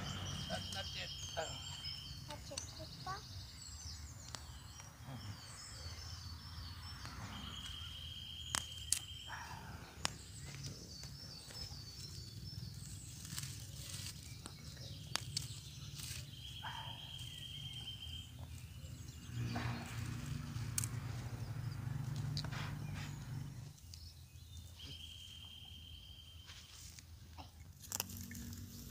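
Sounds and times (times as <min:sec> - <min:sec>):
birds chirping: 0:00.0 - 0:28.9
corn husks snapping and crackling: 0:08.4 - 0:09.3, 0:09.9 - 0:23.1, 0:26.5 - 0:28.9.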